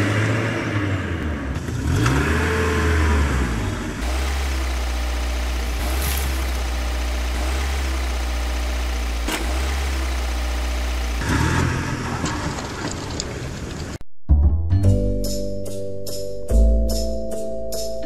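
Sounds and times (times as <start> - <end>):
truck engine idling: 4.0 - 11.2.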